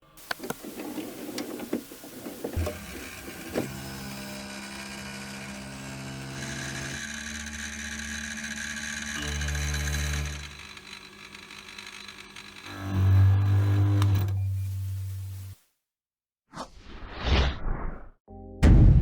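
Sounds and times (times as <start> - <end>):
machine motor running: 0.6 - 14.4.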